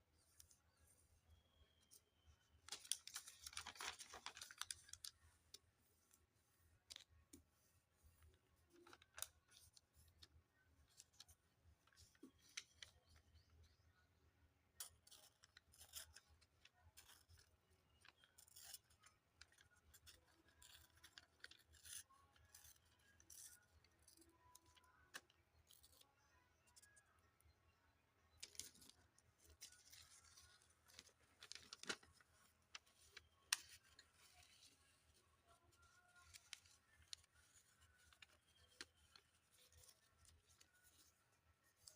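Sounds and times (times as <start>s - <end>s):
paper crackling and rustling: 2.6s - 10.2s, 28.4s - 41.9s.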